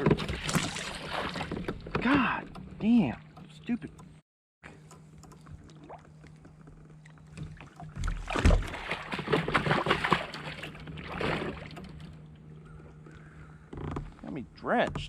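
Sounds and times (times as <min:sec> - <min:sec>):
fish thrashing and splashing water: 0:00.0 - 0:01.8, 0:07.4 - 0:12.0.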